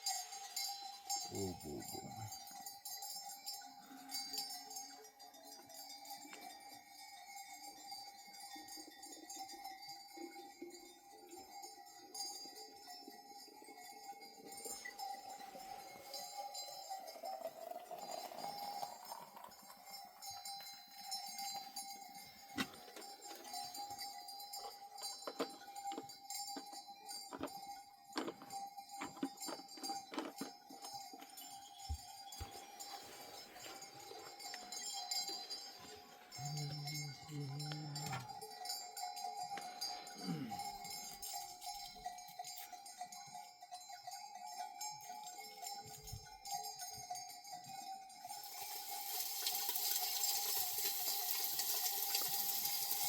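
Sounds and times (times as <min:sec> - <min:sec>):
animal bells clinking: 0:00.0 - 0:53.0
steady ringing tone: 0:28.4 - 0:43.1.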